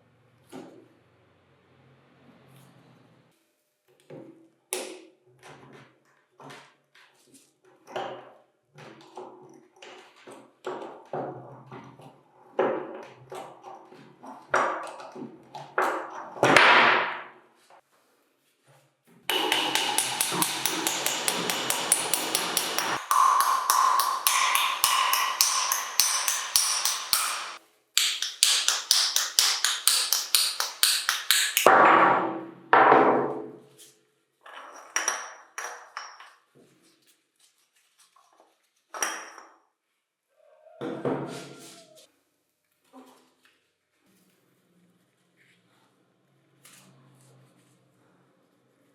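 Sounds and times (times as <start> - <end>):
hammer striking metal: 19.3 - 31.8.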